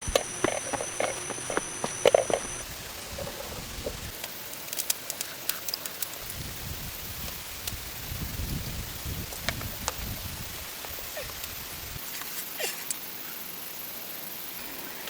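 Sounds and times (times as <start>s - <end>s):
steady high whine: 0.0s - 15.0s
rain pattering in forest: 3.8s - 13.1s.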